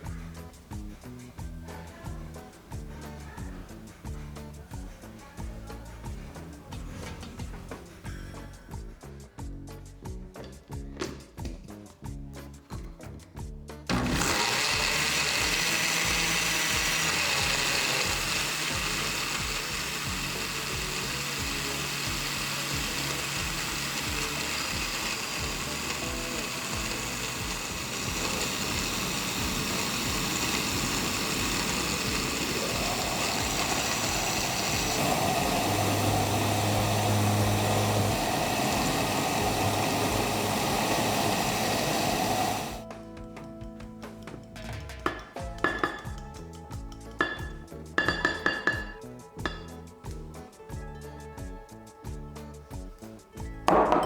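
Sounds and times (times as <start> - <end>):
blender motor running: 13.9 - 42.9, 47.2 - 49.6.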